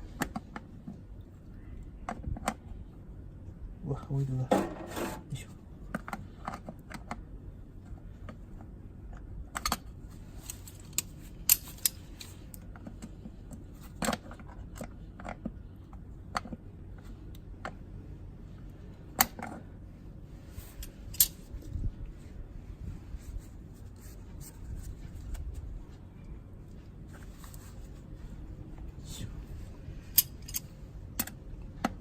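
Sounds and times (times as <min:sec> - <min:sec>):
sharp metal knocks: 0:04.5 - 0:05.2.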